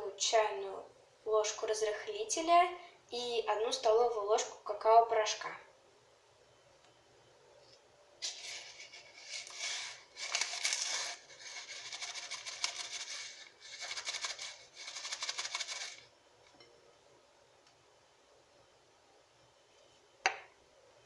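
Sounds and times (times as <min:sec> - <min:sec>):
packets rustling and crinkling: 0:08.2 - 0:16.0.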